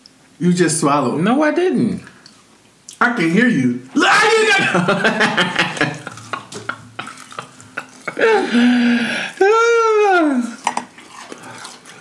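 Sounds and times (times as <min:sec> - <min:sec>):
person making drawn-out sounds: 0:03.9 - 0:05.0, 0:08.1 - 0:10.6
crunching crispy fried food: 0:05.8 - 0:08.2.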